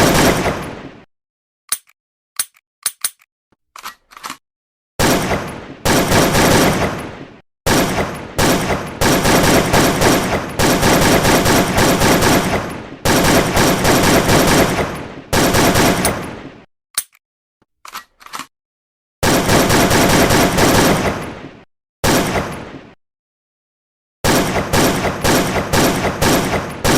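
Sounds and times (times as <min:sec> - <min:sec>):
automatic gunfire: 0:00.0 - 0:00.6, 0:05.0 - 0:07.0, 0:07.7 - 0:16.2, 0:19.2 - 0:21.3, 0:24.2 - 0:26.9
single gunshots: 0:00.0 - 0:01.0, 0:05.0 - 0:16.5, 0:19.2 - 0:23.0.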